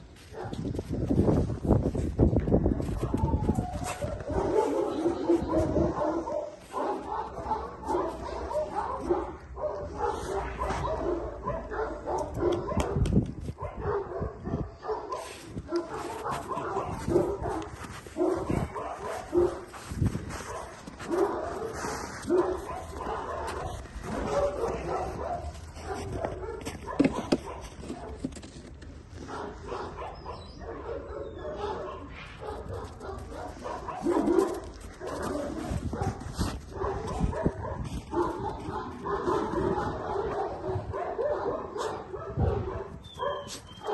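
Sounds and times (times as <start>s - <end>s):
puppy yipping and whimpering: 43.0s - 43.9s.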